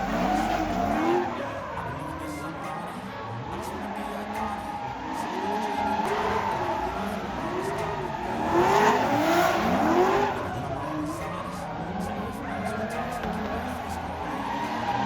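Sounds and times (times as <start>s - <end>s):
tyre squeal: 0.0s - 1.6s
car engine revving: 0.0s - 15.0s.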